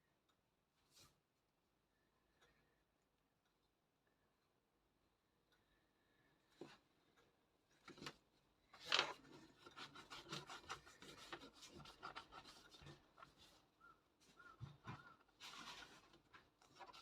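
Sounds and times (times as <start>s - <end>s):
pencil scratching on paper: 9.0s - 17.0s.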